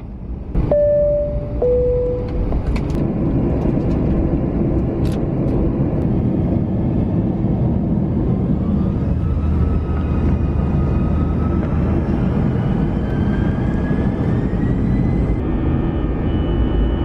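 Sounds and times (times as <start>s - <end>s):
jet cabin engine rush: 0.0s - 17.0s
two-tone cabin chime: 0.6s - 2.5s.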